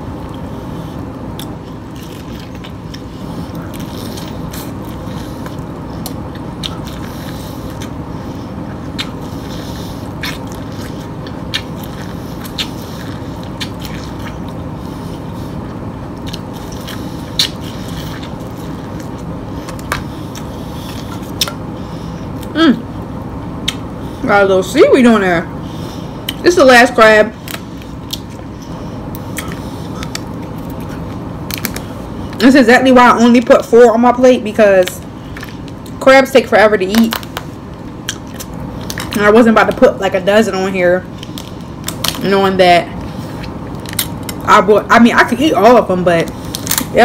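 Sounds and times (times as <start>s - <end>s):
chewing corn on the cob: 0.1s - 21.6s, 27.4s - 32.4s, 36.9s - 39.2s.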